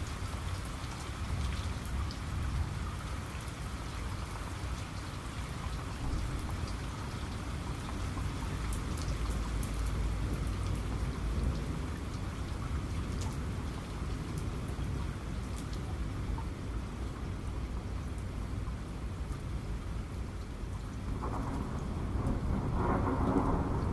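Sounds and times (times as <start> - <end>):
steady rain falling: 0.0 - 23.9
rumble of thunder: 21.1 - 23.9.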